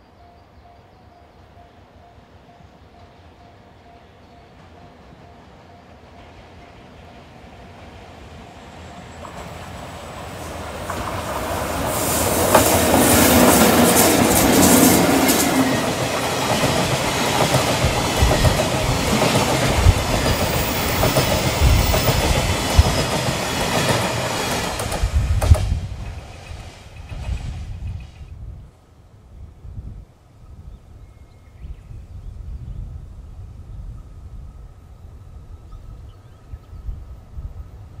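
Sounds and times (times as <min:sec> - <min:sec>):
electric locomotive passing: 0:00.0 - 0:28.6
wheels clacking over rail joints: 0:09.1 - 0:27.3.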